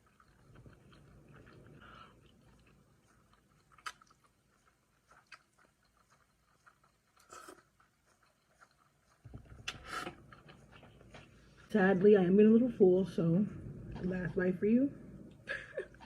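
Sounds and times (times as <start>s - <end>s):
food crunching: 0.0s - 11.7s
person chewing food: 0.0s - 11.7s.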